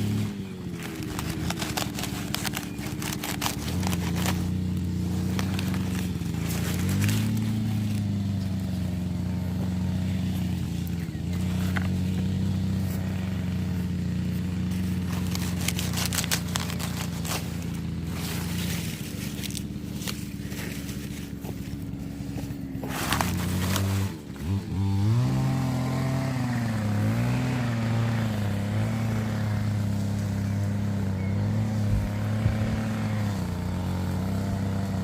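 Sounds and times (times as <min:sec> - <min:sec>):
engine running: 0:00.0 - 0:35.0
clicks and crackles: 0:00.7 - 0:08.1, 0:15.0 - 0:21.5.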